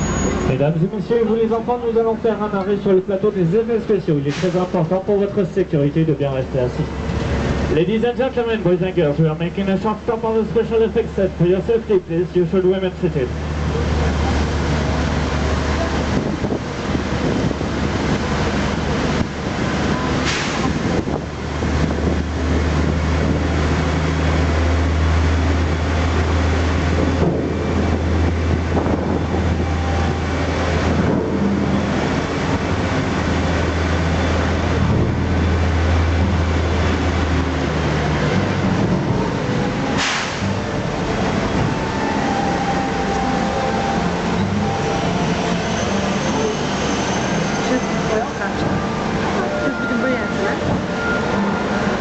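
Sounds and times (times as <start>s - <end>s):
tram running with low drone: 0.0s - 52.0s
short hiss: 20.2s - 20.7s, 40.0s - 40.5s.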